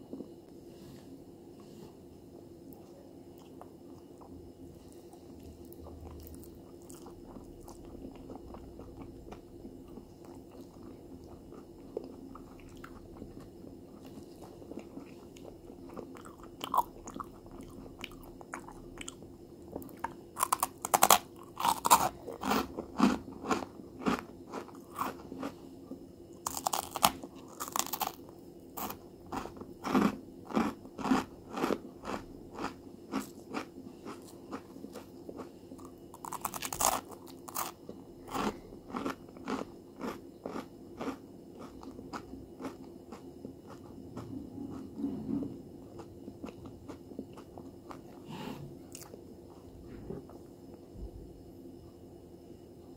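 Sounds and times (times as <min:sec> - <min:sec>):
crunchy snack crunching: 0:03.4 - 0:25.6, 0:26.4 - 0:45.1, 0:45.9 - 0:48.2, 0:48.9 - 0:49.2.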